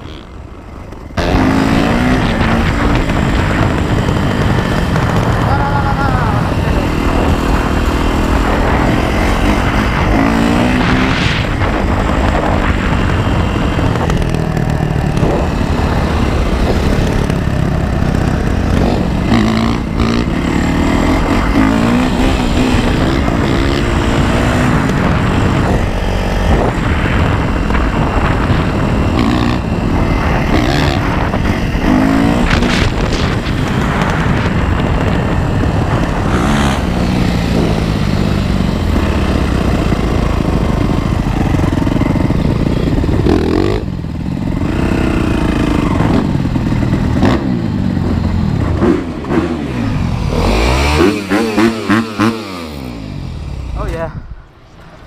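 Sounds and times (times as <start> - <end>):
dirt bike engine revving: 0.0 - 54.0
constant rushing noise: 0.0 - 55.0.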